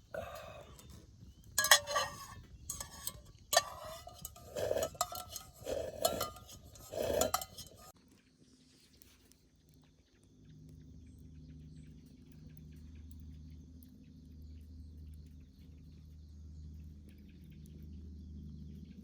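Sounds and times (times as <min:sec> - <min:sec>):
metal cookware clinking and scraping: 0:00.0 - 0:01.0, 0:01.6 - 0:07.9.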